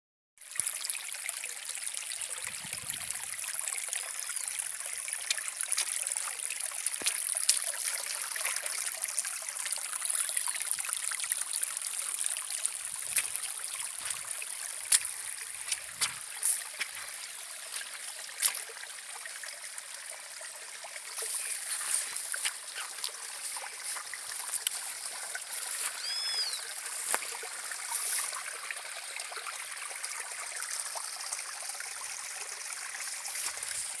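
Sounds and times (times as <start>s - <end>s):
stream trickling and splashing: 0.4s - 34.0s
sharper water splashes: 4.9s - 18.8s, 21.1s - 28.5s.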